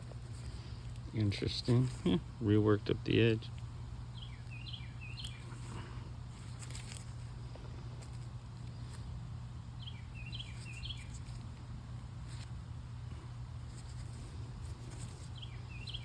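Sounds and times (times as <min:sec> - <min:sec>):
songbird chirping: 0:04.1 - 0:05.9, 0:09.8 - 0:11.4, 0:15.2 - 0:16.0.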